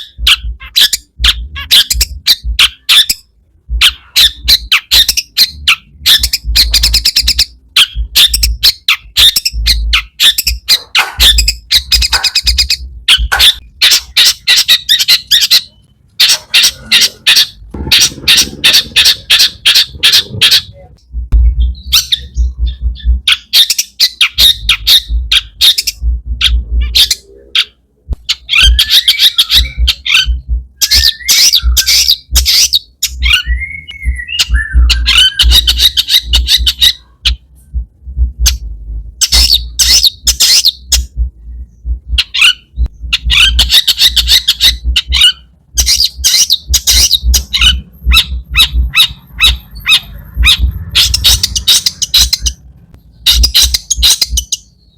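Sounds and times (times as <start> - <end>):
shrike harsh chattering song: 0.0 - 54.9
bird whistled slurred notes: 28.2 - 37.4.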